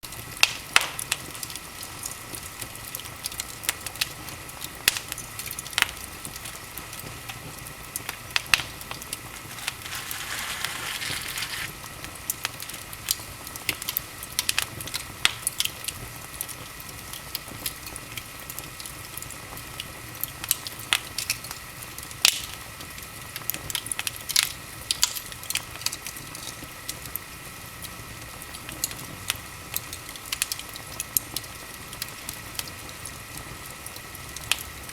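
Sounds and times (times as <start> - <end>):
wood fire crackling: 8.5 - 11.7.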